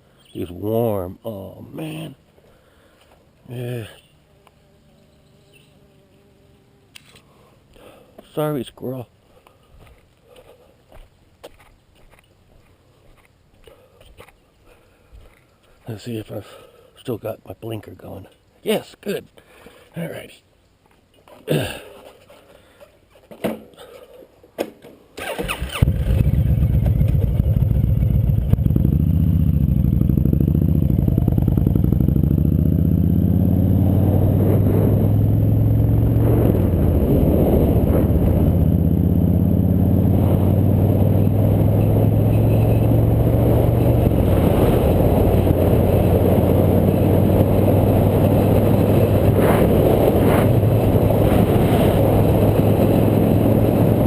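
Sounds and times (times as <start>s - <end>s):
motorcycle engine running: 25.8s - 54.0s.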